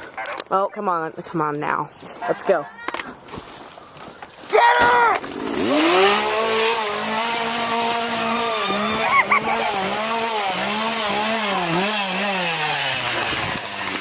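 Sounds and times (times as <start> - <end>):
chainsaw engine revving: 5.1 - 14.0.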